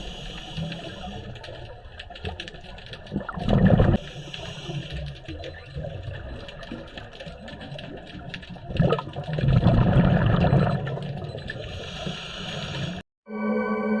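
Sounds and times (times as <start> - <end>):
faint underwater clicks: 0.0 - 13.0
exhaled bubbles rushing underwater: 2.8 - 12.2.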